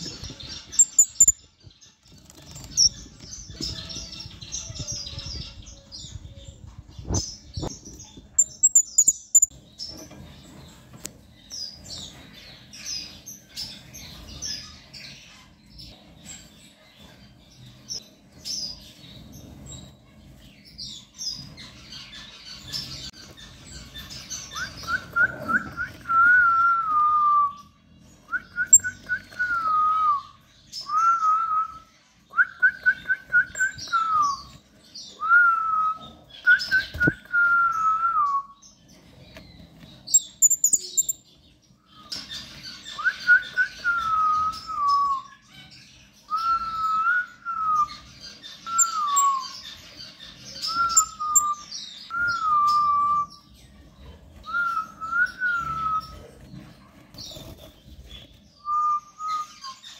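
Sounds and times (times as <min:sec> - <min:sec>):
thin high chirps: 0:00.7 - 0:01.5, 0:08.4 - 0:09.6, 0:28.7 - 0:29.3, 0:40.1 - 0:41.2.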